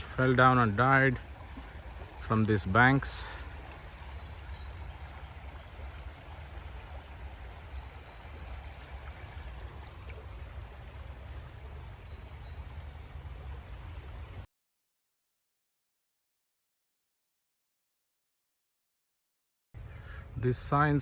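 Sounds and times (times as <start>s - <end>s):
stream flowing over rocks: 0.0s - 14.4s.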